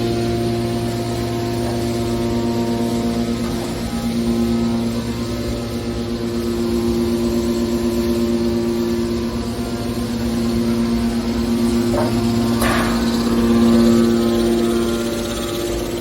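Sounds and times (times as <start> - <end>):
industrial machinery humming: 0.0 - 16.0
short metallic clanks: 11.9 - 13.6.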